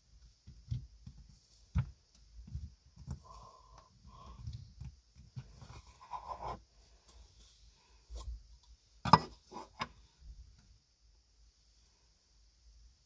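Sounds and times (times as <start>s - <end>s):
thumps and clicks: 0.2s - 6.5s.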